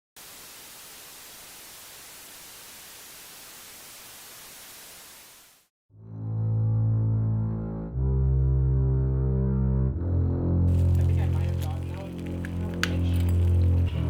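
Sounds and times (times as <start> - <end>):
white noise static hiss: 0.2 - 5.6.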